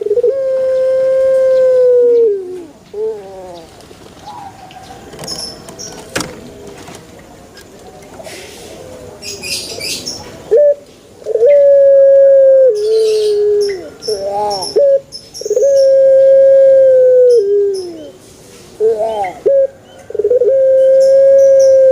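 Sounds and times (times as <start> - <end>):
dove cooing: 0.0 - 6.2, 9.4 - 18.2, 18.8 - 21.9
small bird chirping: 12.8 - 16.0.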